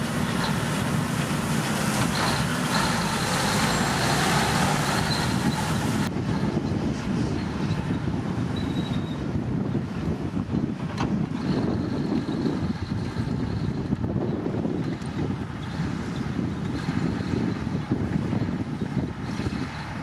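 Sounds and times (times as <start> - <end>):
engine clatter and hiss: 0.0 - 7.9
diesel engine rumbling: 0.0 - 20.0.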